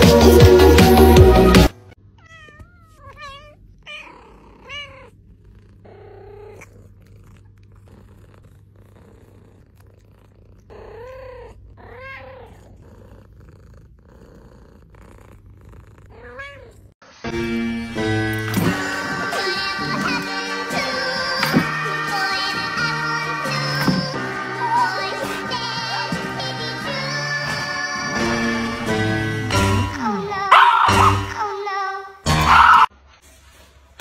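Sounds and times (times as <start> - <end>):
music: 0.0 - 1.9, 17.2 - 30.2, 30.9 - 31.5, 32.2 - 32.9
cat meowing: 2.2 - 5.2, 10.7 - 12.7, 16.1 - 16.9
cat purring: 2.8 - 17.0.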